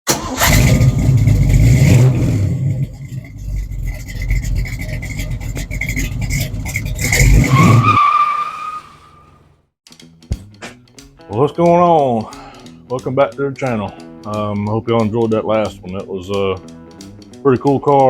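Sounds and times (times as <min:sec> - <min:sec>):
car engine revving hard: 0:00.1 - 0:03.3, 0:04.4 - 0:08.0
high squeal: 0:05.9 - 0:09.4.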